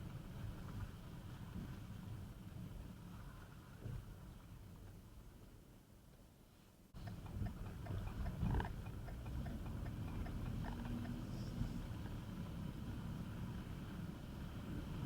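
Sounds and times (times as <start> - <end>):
small scattered clicks: 7.0 - 12.2
car driving rumble: 7.0 - 15.0.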